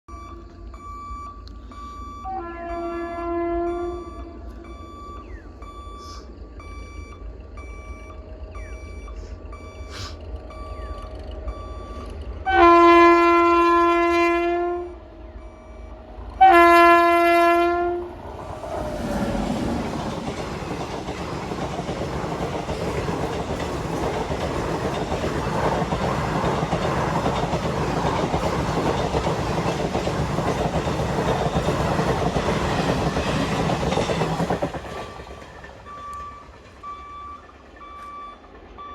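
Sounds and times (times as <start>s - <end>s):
locomotive horn blasts: 2.2s - 4.6s, 12.4s - 15.0s, 16.4s - 18.2s
train wheels clattering on rails: 18.1s - 38.9s.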